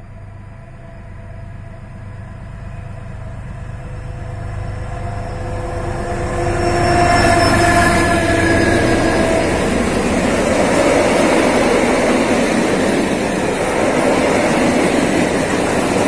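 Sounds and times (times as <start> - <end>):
train locomotive rumbling: 0.0 - 16.0.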